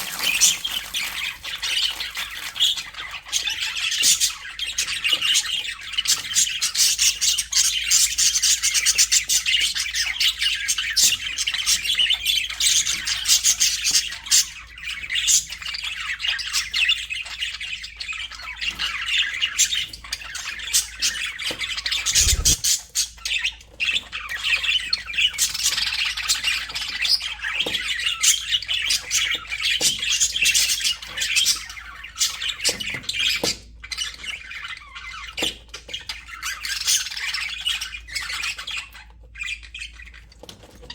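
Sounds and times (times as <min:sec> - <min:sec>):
budgerigars chattering and squawking: 0:22.0 - 0:22.8.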